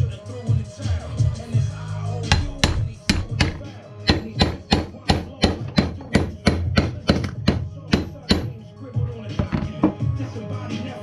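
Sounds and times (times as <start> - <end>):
background music: 0.0 - 11.0
rapid sharp knocks: 2.3 - 8.5.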